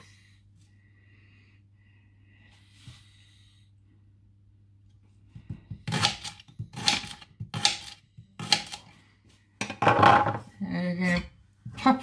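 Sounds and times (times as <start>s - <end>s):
knife chopping on board: 5.4s - 8.8s.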